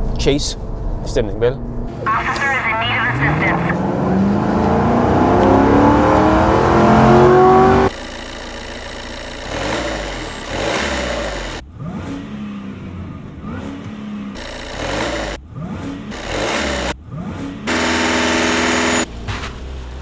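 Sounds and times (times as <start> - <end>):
car engine accelerating: 2.8 - 20.0
car engine revving from inside: 3.1 - 7.9.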